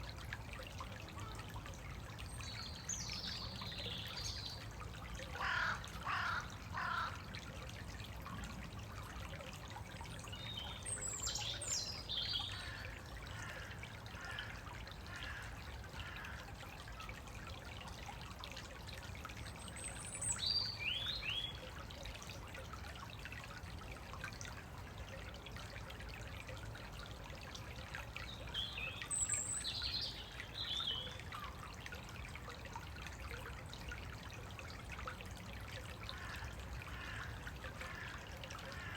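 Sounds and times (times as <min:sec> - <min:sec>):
stream trickling: 0:00.0 - 0:38.9
songbirds singing: 0:10.3 - 0:12.9, 0:19.6 - 0:21.7, 0:28.1 - 0:31.6.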